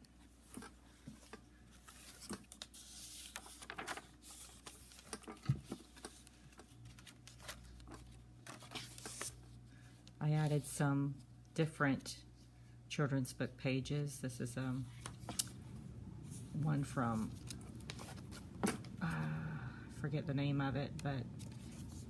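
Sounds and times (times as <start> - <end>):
paper pages rustling: 0.4 - 9.6, 14.9 - 15.6, 16.2 - 19.0, 21.4 - 22.0.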